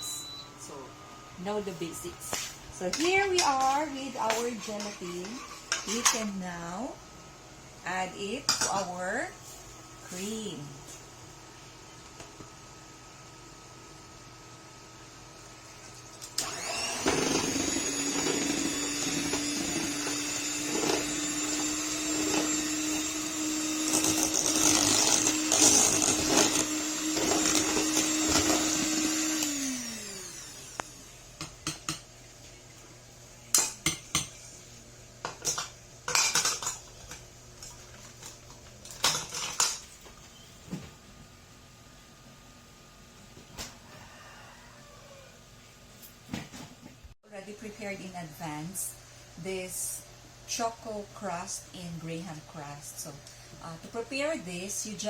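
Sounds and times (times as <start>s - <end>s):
electric mixer motor running: 16.1s - 31.1s.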